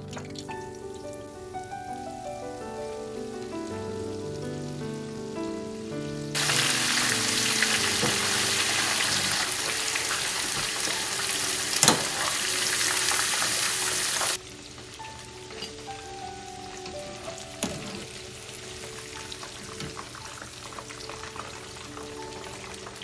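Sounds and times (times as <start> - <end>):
background music: 0.0 - 23.0
chicken frying in hot oil: 6.2 - 23.0.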